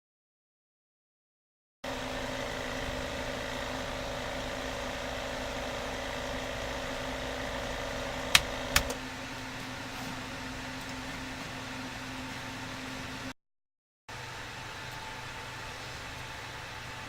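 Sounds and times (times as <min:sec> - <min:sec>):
rework station humming: 0:01.8 - 0:13.3
sharp clicks: 0:08.3 - 0:09.0.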